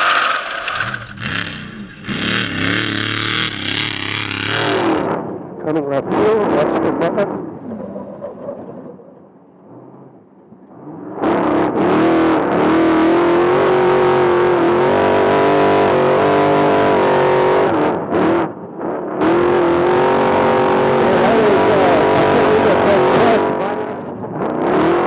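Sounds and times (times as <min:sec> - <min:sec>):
truck engine at high revs: 0:00.0 - 0:05.3, 0:11.7 - 0:18.4, 0:19.2 - 0:25.0.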